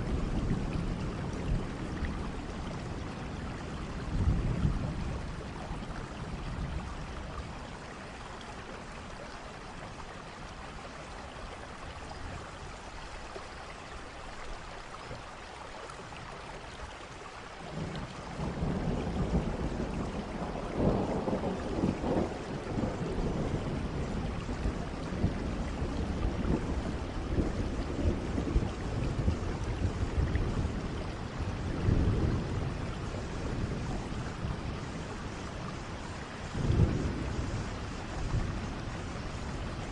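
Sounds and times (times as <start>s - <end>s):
thunder rumbling: 0.0s - 7.8s, 17.7s - 39.9s
steady rain falling: 0.0s - 39.9s.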